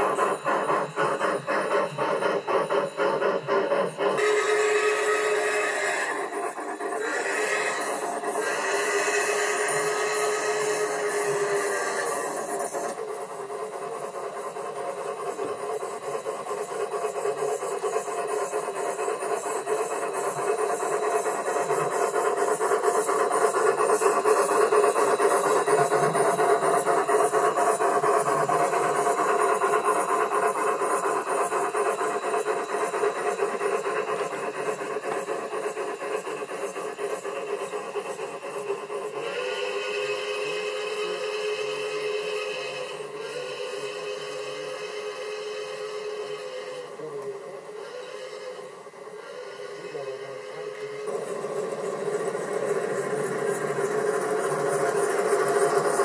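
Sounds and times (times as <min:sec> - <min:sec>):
train wheels clattering past: 0:50.4 - 0:56.0.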